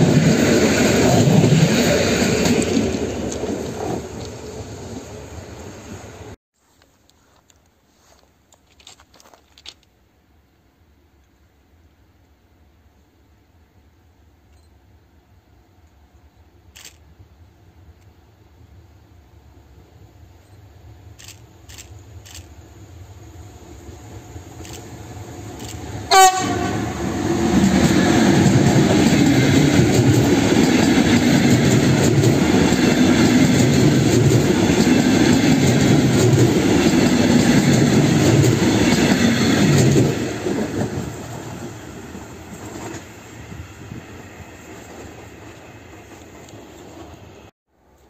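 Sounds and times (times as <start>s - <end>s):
train wheels on rails: 0.0s - 9.9s, 20.4s - 48.0s
train horn blast: 26.1s - 27.8s.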